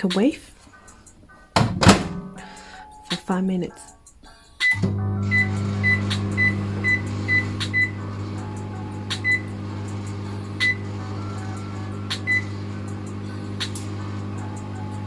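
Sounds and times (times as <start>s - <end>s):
microwave oven humming: 4.7s - 15.0s.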